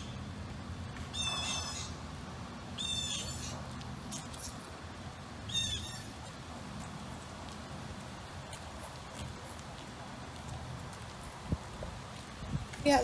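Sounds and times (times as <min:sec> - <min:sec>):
bird calling: 0:00.0 - 0:00.4, 0:01.0 - 0:02.0, 0:02.7 - 0:04.8, 0:05.4 - 0:06.3
low outdoor rumble: 0:00.0 - 0:13.0.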